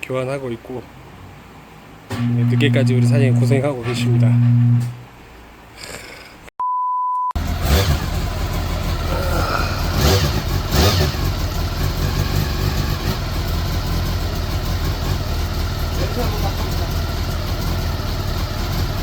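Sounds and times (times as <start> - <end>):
motorcycle engine idling: 7.4 - 19.0.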